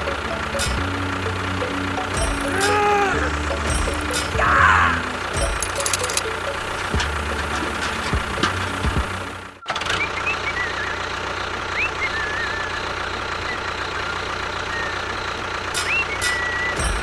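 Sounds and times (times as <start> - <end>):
small motor humming: 0.0 - 9.6.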